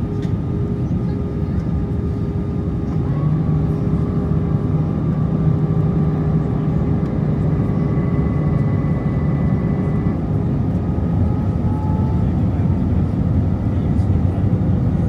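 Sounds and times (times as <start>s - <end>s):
airflow rush in aircraft cabin: 0.0s - 15.0s
jet engines droning: 0.0s - 15.0s
faint whining tones: 2.8s - 13.1s.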